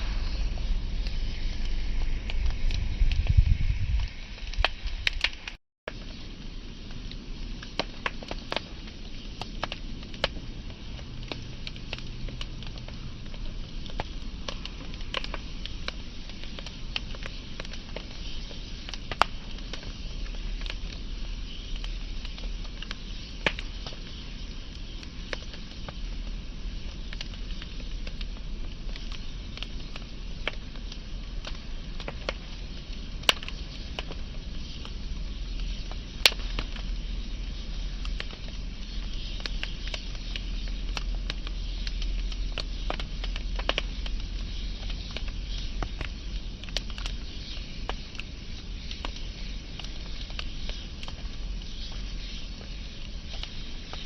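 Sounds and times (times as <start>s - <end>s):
burning wood popping: 0.0s - 54.0s
wood fire crackling: 0.0s - 54.0s.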